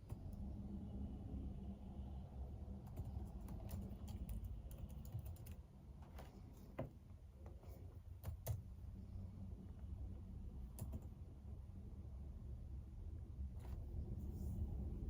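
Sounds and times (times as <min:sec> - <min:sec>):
low steady hum: 0:00.0 - 0:15.0
typing on a computer keyboard: 0:02.8 - 0:06.2, 0:08.2 - 0:08.8, 0:10.6 - 0:11.2.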